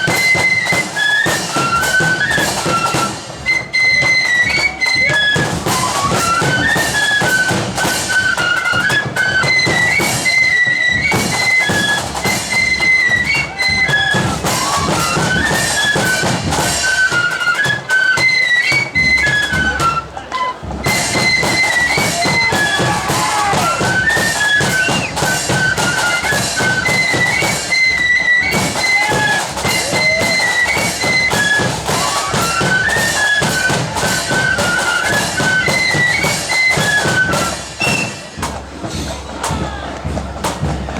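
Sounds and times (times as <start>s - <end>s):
high bright flute melody: 0.0s - 39.6s
loud dense drumming: 11.0s - 17.4s, 20.6s - 40.9s.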